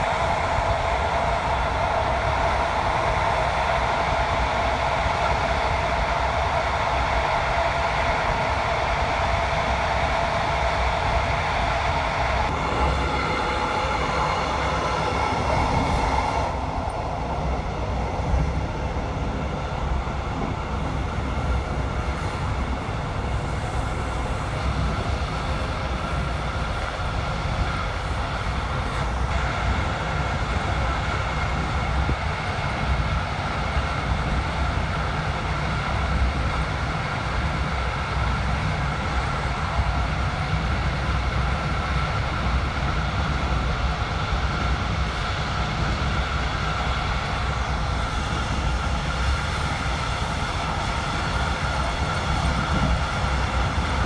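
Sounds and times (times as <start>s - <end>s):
train rumbling on rails: 0.0s - 54.0s
high hum: 11.0s - 29.4s.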